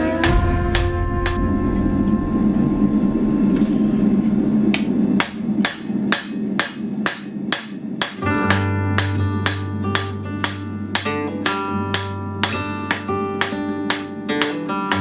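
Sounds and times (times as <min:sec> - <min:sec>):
music: 0:00.0 - 0:04.1, 0:08.2 - 0:15.0
low rushing noise: 0:00.0 - 0:06.1
hammer blows on hot steel: 0:00.0 - 0:15.0.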